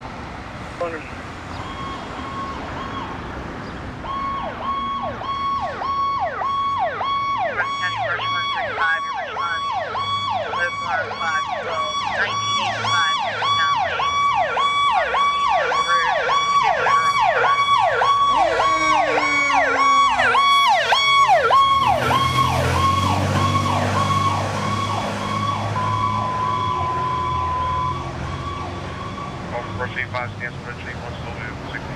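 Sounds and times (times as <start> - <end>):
fire engine siren cycling: 1.5 - 30.2
slower falling siren tone: 16.0 - 29.4
low engine rumble: 18.2 - 25.0.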